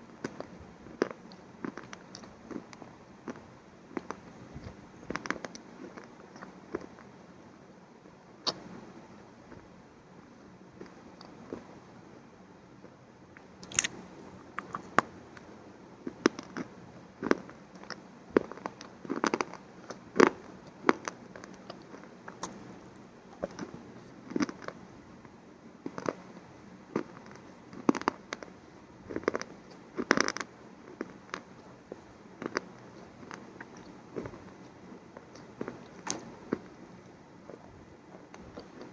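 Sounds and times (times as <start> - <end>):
crunchy food being chewed: 0.2 - 7.0, 13.4 - 17.5, 18.4 - 24.8, 29.1 - 37.7.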